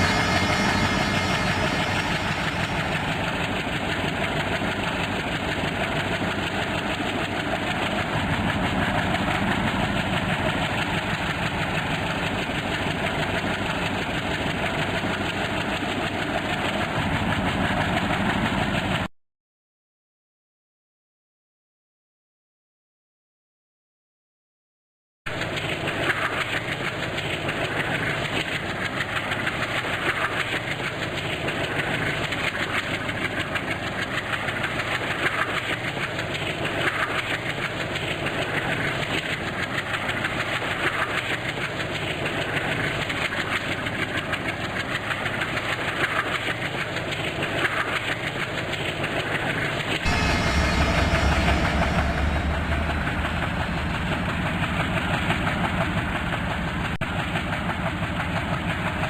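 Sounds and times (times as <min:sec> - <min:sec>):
diesel locomotive engine drone: 0:00.0 - 0:19.1, 0:25.3 - 0:59.0
train rumbling on rails: 0:00.0 - 0:19.1, 0:25.3 - 0:59.0
train wheels clicking over rail joints: 0:25.3 - 0:50.0.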